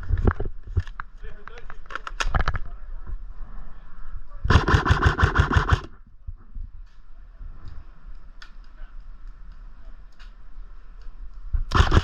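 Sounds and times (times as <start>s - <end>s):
airsoft gun full-auto burst: 4.5s - 6.0s, 11.7s - 12.0s
faint clicks: 7.6s - 11.5s.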